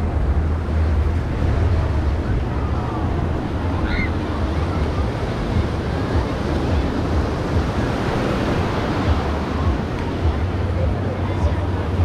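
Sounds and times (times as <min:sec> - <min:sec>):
ocean surf on beach: 0:00.0 - 0:12.0
wind buffeting microphone: 0:00.0 - 0:12.0.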